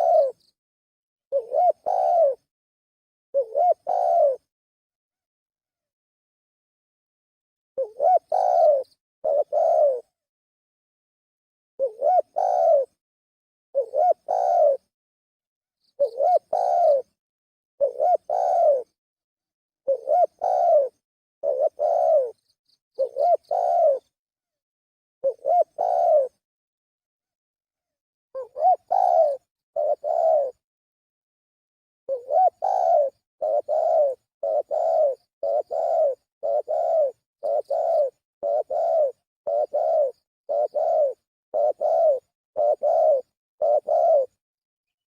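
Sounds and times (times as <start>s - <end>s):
dove cooing: 0.0s - 0.5s, 1.3s - 2.5s, 3.4s - 4.5s, 7.8s - 10.2s, 11.8s - 13.0s, 13.8s - 14.9s, 15.9s - 17.2s, 17.8s - 19.0s, 19.9s - 24.2s, 25.2s - 26.4s, 28.4s - 30.6s, 32.1s - 44.4s.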